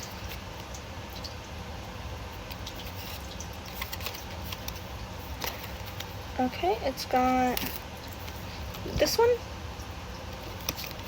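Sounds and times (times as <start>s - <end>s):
low background hum: 0.0s - 11.0s
cards clicking and rustling: 2.5s - 6.1s, 10.4s - 11.0s.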